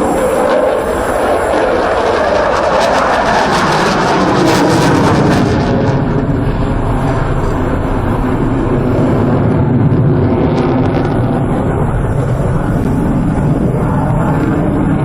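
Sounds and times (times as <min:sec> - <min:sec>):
fighter jet engines roaring: 0:00.0 - 0:15.0.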